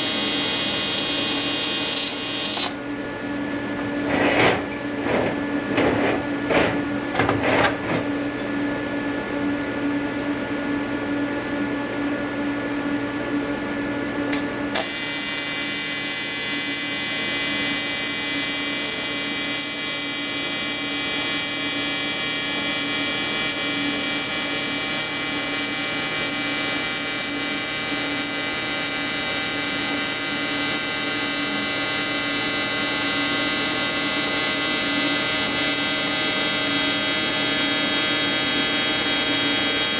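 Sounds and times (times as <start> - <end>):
welding arc buzzing: 0.0 - 2.8, 14.3 - 39.9.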